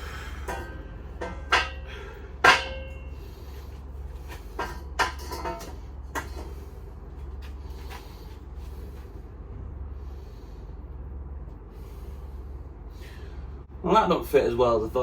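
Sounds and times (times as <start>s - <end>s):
metallic clanks: 0.0s - 3.3s, 4.3s - 6.6s
metallic ringing: 0.0s - 3.3s.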